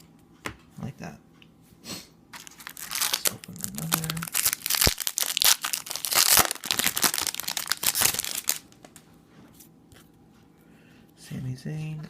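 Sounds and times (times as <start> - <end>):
card wrapper tearing and crinkling: 2.4 - 8.9.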